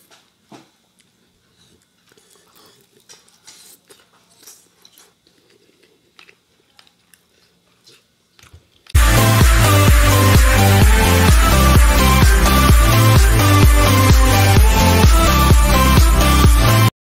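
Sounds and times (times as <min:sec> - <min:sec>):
chewing crispy fried chicken: 0:01.5 - 0:09.0
loud electronic dance music: 0:09.0 - 0:16.9.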